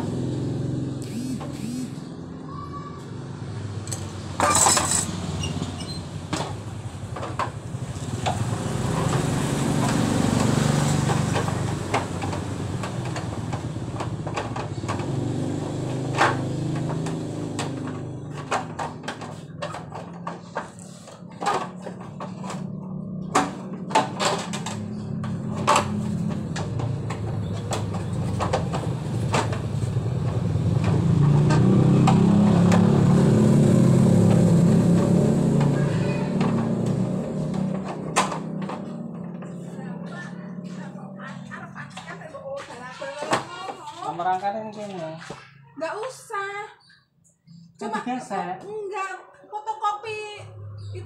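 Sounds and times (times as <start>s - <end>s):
engine rumbling: 0.0s - 43.8s, 50.0s - 51.0s.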